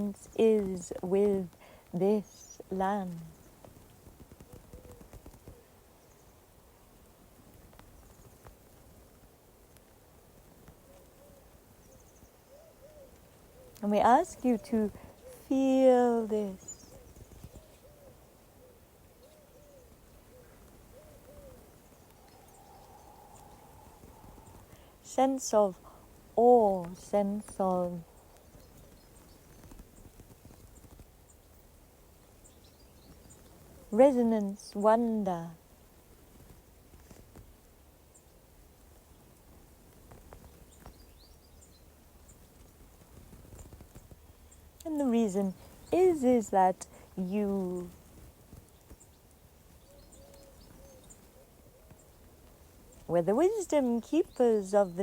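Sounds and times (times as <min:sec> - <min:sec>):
faint hooting bird calls: 0:04.4 - 0:06.4, 0:10.8 - 0:15.5, 0:16.5 - 0:25.1, 0:48.8 - 0:55.0.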